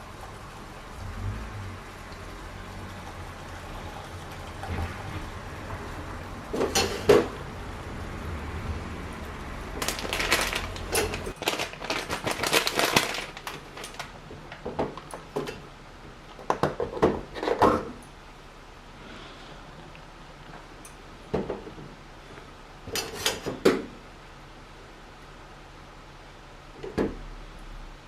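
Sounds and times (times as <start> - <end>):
scraping and rustling: 9.8 - 15.6.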